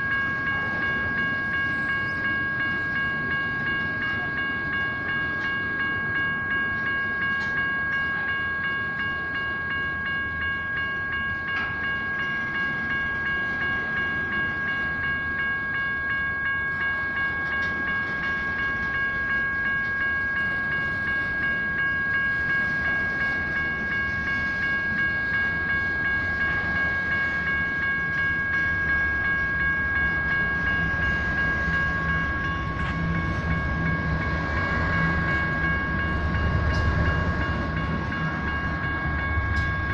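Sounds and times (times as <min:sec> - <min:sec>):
electronic crossing bell ringing: 0:00.0 - 0:39.9
train wheels rumbling on rails: 0:00.0 - 0:39.9.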